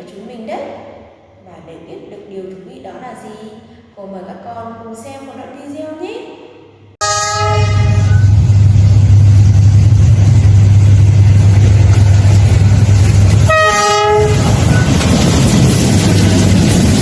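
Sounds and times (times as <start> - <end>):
train horn: 7.0 - 8.4, 13.4 - 14.9
train rumbling past: 7.0 - 17.0.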